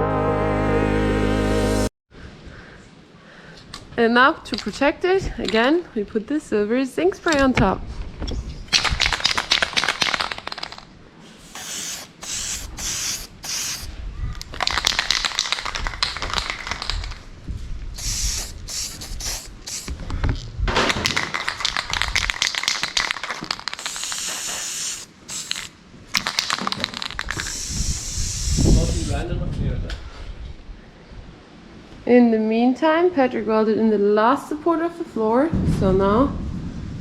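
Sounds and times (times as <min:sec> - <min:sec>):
spray can shaking rattle: 0:08.7 - 0:10.8, 0:11.5 - 0:13.9, 0:14.5 - 0:17.3, 0:18.0 - 0:20.0, 0:20.9 - 0:28.6
aerosol spray hissing: 0:11.4 - 0:13.9, 0:18.0 - 0:20.0, 0:23.6 - 0:25.7, 0:27.2 - 0:29.2.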